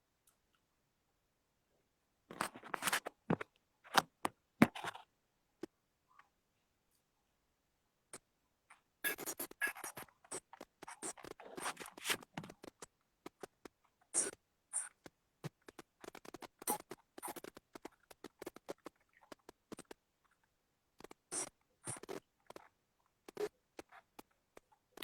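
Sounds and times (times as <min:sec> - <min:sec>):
rustling scraping and clicking: 0:02.3 - 0:05.1, 0:09.1 - 0:13.8.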